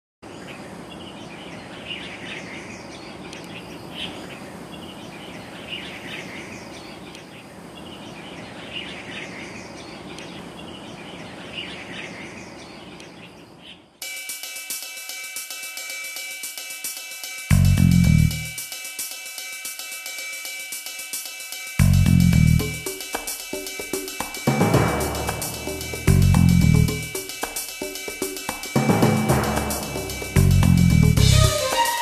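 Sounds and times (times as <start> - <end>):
bird chirping: 0.2 - 14.0
outdoor background noise: 0.2 - 32.0
music with cymbals and hi-hat: 14.0 - 32.0.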